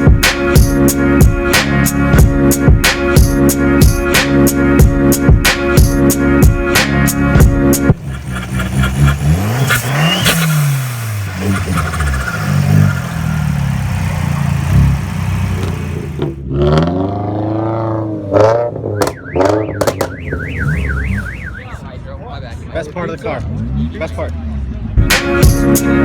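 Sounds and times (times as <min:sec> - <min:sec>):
car engines revving: 0:05.6 - 0:26.0
car alarm warbling siren: 0:18.8 - 0:21.9.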